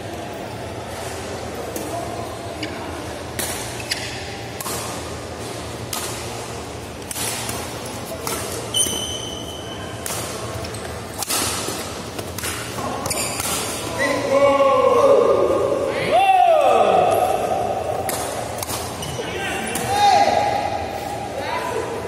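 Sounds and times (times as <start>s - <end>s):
shoe squeaking on court floor: 3.7s - 4.5s, 8.0s - 10.0s, 12.6s - 14.2s, 18.8s - 19.9s
racket striking shuttlecock: 10.0s - 13.9s, 17.9s - 19.0s.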